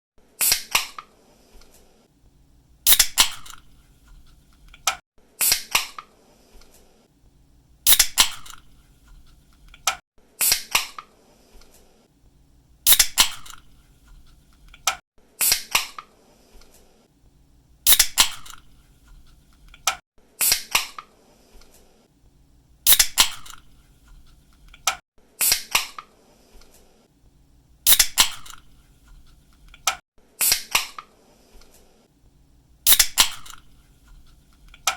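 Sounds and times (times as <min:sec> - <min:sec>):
drink can snapped open with hiss: 0:02.9 - 0:03.6, 0:07.9 - 0:08.7, 0:12.9 - 0:13.7, 0:17.9 - 0:18.6, 0:22.9 - 0:23.6, 0:27.9 - 0:28.6, 0:32.9 - 0:33.7.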